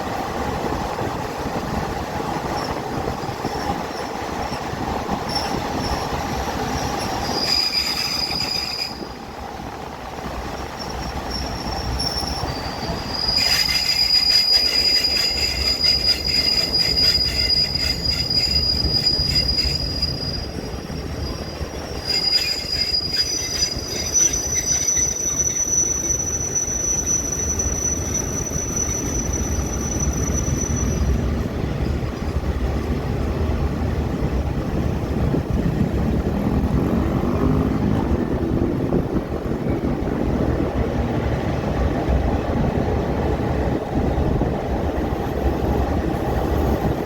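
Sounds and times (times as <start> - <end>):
train low rumble: 0.0 - 47.0
train wheels squealing: 2.4 - 9.4, 10.5 - 32.6
wheels clicking over rail joints: 10.5 - 26.1.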